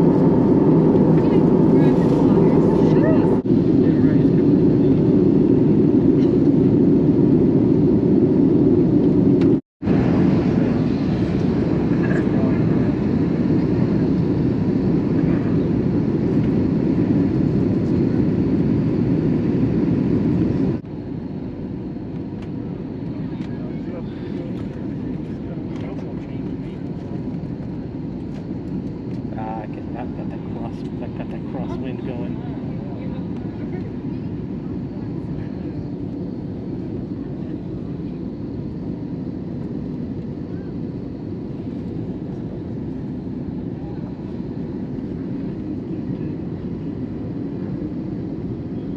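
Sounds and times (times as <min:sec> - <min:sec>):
airliner cabin roar: 0:00.0 - 0:48.9.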